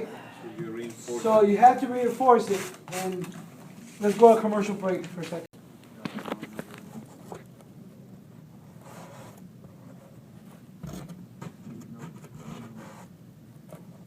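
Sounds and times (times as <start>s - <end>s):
board scraping by hand: 2.4s - 3.2s.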